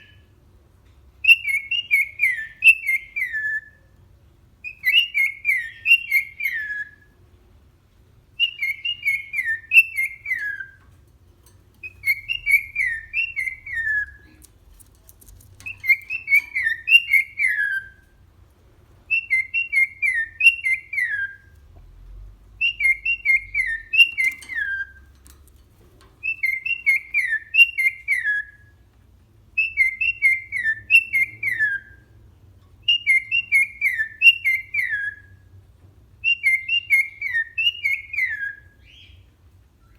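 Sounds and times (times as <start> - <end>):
cockatiel whistling a tune: 0.0 - 0.3, 1.2 - 3.9, 4.6 - 7.1, 8.4 - 10.8, 11.8 - 14.3, 15.6 - 18.0, 19.1 - 21.5, 22.6 - 25.0, 26.2 - 28.8, 29.5 - 32.1, 32.8 - 35.5, 36.2 - 39.2.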